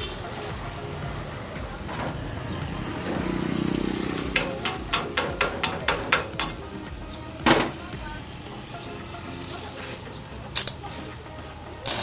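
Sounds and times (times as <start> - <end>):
sharp knocks: 0.0 - 8.2
low motor-like hum: 0.0 - 9.2.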